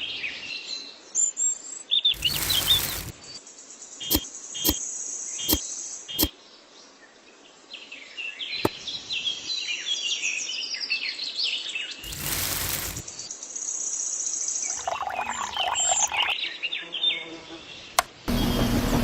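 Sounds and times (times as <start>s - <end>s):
birds chirping: 14.7s - 16.4s.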